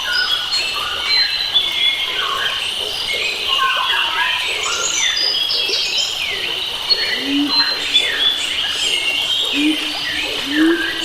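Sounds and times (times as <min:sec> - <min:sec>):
birds singing: 0:00.0 - 0:11.0
insect drone: 0:05.5 - 0:11.0.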